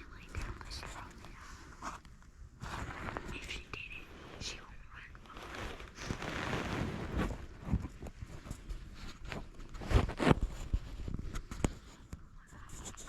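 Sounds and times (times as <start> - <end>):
rustling and scuffing of gear: 5.4 - 12.1.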